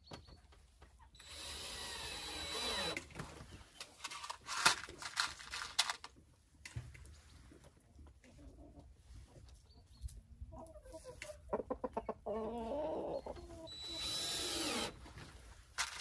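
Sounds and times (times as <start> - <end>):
hens clucking: 10.5 - 13.7.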